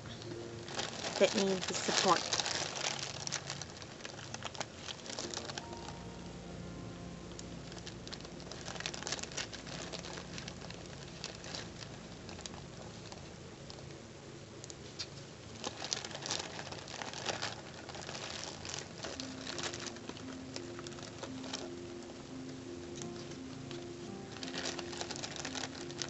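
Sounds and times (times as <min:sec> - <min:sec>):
foam pads peeling and crinkling: 0:00.2 - 0:06.0, 0:07.7 - 0:14.0, 0:14.6 - 0:22.2, 0:23.0 - 0:26.0.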